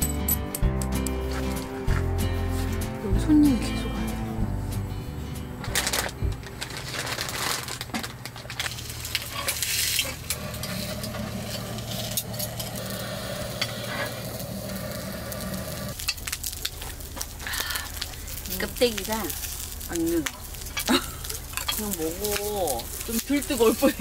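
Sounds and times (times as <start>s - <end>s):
pork skin sizzling in a pan: 8.6s - 24.0s.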